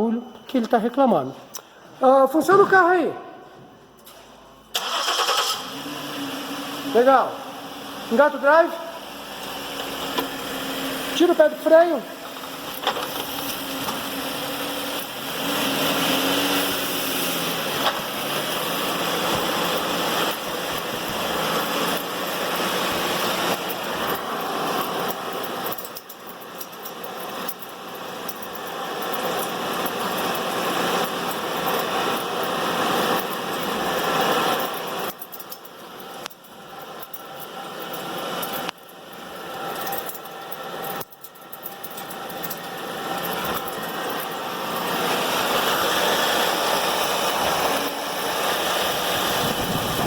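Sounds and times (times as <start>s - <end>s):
car engine running: 9.0s - 11.2s, 12.1s - 50.0s.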